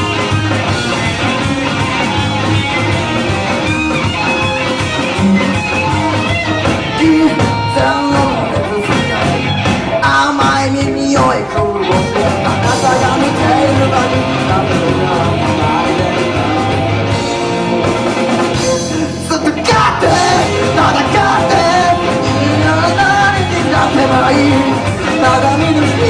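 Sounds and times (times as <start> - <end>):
live rock band playing: 0.0 - 26.0
singer shouting vocals: 7.0 - 17.0, 18.6 - 26.0.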